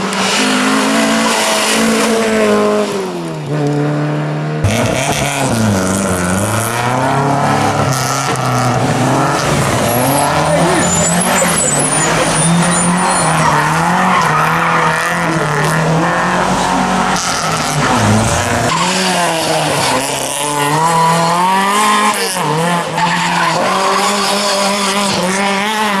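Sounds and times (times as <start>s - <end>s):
rally car engines revving: 0.0s - 26.0s.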